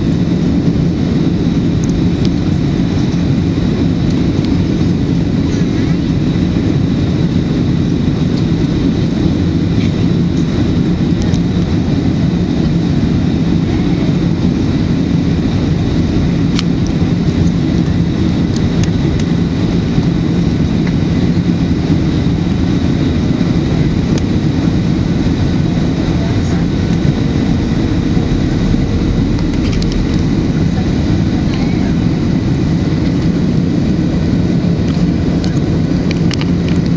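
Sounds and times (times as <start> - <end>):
aircraft cabin engine rumble: 0.0 - 36.9
faint high whine: 24.4 - 35.8.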